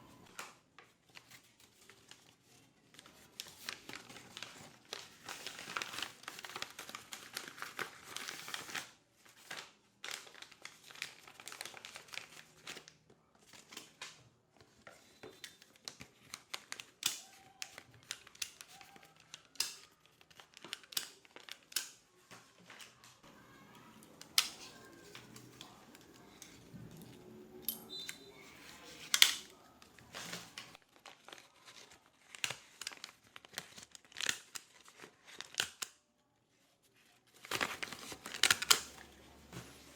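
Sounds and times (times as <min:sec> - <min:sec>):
paper rustling: 0:00.1 - 0:27.3, 0:27.9 - 0:35.9, 0:36.5 - 0:39.9
faint murmur of voices: 0:21.9 - 0:30.8.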